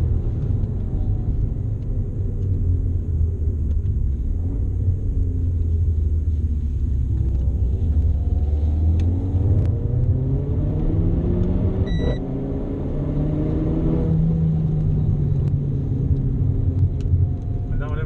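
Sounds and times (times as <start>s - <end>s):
car engine accelerating: 0.0s - 18.0s
gearbox upshift tone: 11.8s - 12.2s.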